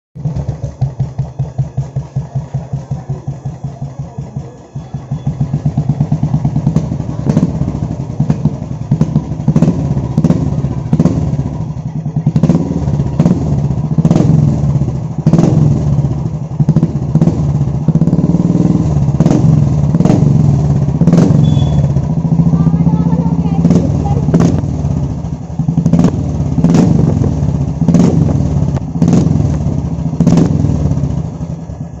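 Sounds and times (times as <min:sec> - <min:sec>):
motorcycle engine idling and revving: 0:00.0 - 0:32.0
exhaust cracks: 0:12.3 - 0:32.0.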